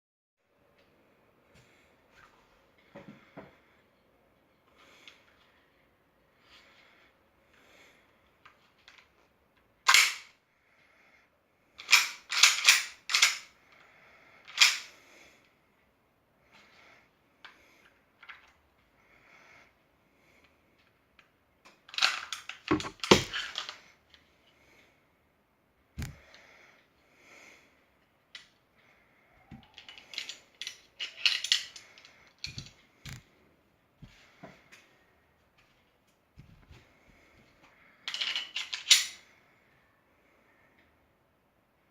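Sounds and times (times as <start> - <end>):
metal and plastic parts clicking: 9.8 - 10.3, 11.8 - 13.6, 14.4 - 14.9, 21.2 - 23.8, 29.6 - 33.2, 38.1 - 39.2
pistol slide metallic clacks: 9.9 - 10.3, 11.8 - 13.5, 14.5 - 15.0.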